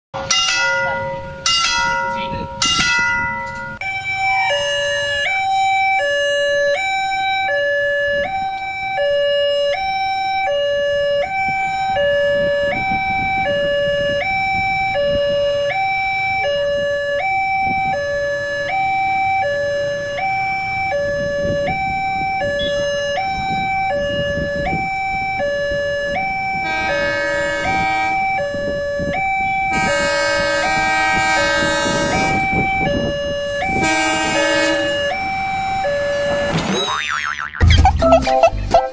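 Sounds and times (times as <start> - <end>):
two-tone crossing alarm: 0.2 - 38.9
train horn: 26.6 - 28.3, 29.7 - 32.4, 33.7 - 35.0.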